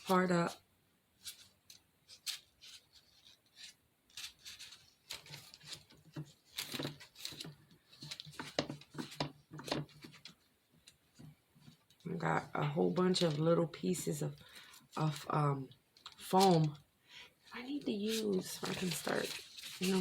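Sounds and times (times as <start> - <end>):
spackle scraping: 1.2 - 12.0, 17.5 - 20.0.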